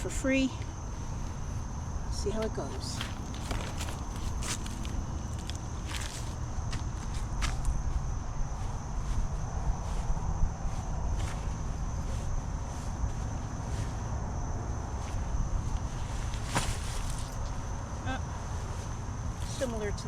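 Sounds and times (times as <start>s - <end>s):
crickets trilling: 0.0s - 20.0s
wind rumble on microphone: 0.0s - 20.0s
clicks and rustles of gear: 2.8s - 6.4s.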